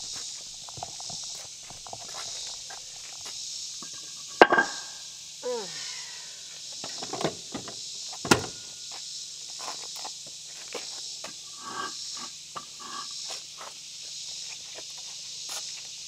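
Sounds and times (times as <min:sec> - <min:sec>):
high insect drone: 0:00.0 - 0:16.0
sharp knocks and clunks: 0:06.8 - 0:08.7.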